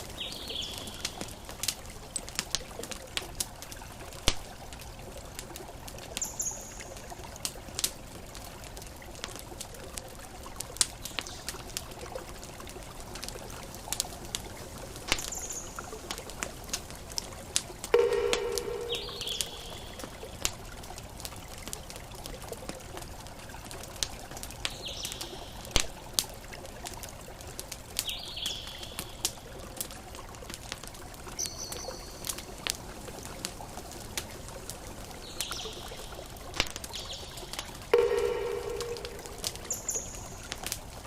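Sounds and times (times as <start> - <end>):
campfire crackling and popping: 0.0 - 41.0
low-pitched call: 17.9 - 20.3, 37.9 - 40.5
ocean waves: 17.9 - 20.4, 37.9 - 40.6
short high bird calls: 18.0 - 20.1, 38.0 - 40.4.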